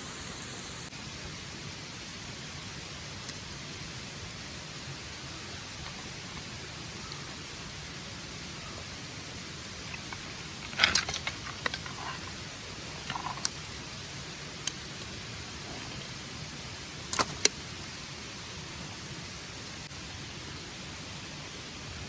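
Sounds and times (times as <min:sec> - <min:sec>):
outdoor background hiss: 0:00.0 - 0:22.0
sharp clicks and knocks: 0:09.9 - 0:12.4, 0:13.0 - 0:13.6.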